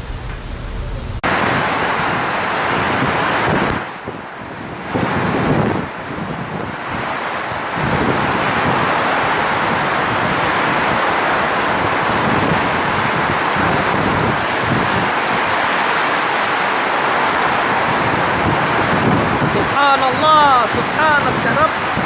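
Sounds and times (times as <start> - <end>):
storm wind and rain: 0.0 - 22.0
wind gusts rumbling on microphone: 0.0 - 22.0.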